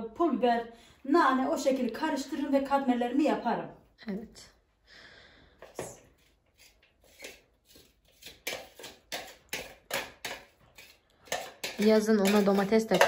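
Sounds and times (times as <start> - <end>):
utensil knocking and scraping bowl: 5.6 - 13.0.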